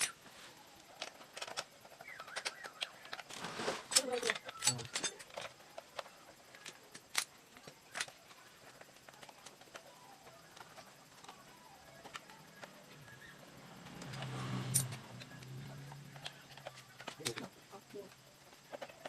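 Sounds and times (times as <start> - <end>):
metallic clinks of tools: 14.6 - 15.2.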